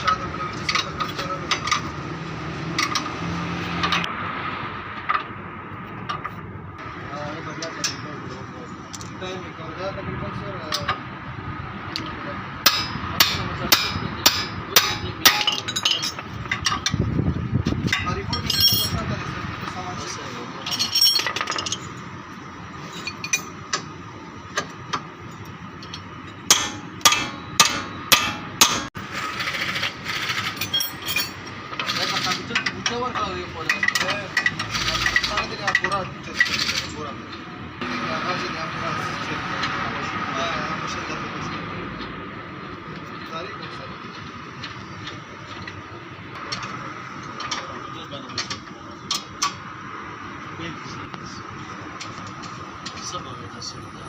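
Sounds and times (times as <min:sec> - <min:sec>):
steady background noise: 0:00.0 - 0:54.0
hammer striking metal: 0:12.6 - 0:16.9, 0:25.8 - 0:29.0
sharp mechanical clicks: 0:31.8 - 0:32.6.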